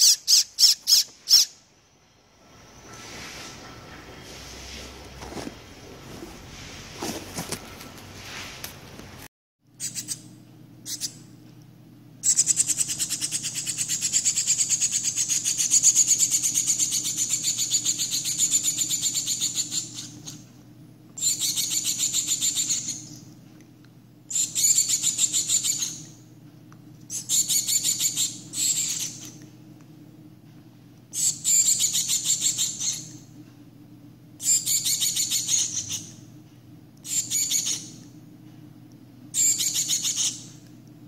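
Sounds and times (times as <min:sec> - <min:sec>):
nestling begging calls: 0:00.0 - 0:01.6, 0:12.2 - 0:20.4, 0:21.2 - 0:23.2, 0:24.3 - 0:26.1, 0:27.1 - 0:29.4, 0:31.1 - 0:33.2, 0:34.4 - 0:36.2, 0:37.0 - 0:38.0, 0:39.4 - 0:40.5.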